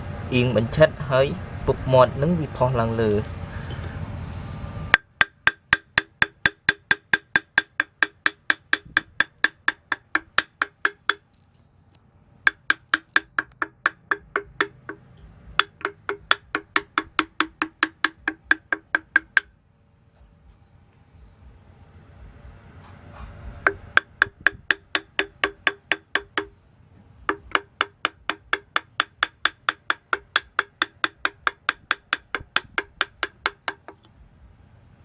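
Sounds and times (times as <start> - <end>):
rapid ringing knocking: 4.9 - 11.3, 12.4 - 19.6, 23.6 - 26.6, 27.2 - 34.1.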